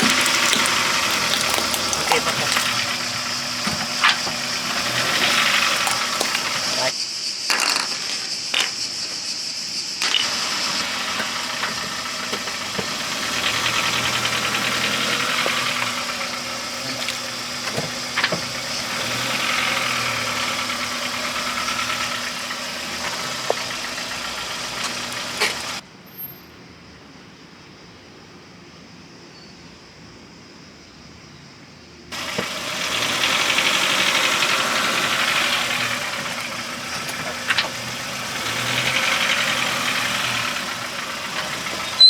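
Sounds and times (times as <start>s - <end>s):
car engine running: 0.0s - 6.9s, 10.2s - 25.8s, 32.1s - 42.0s.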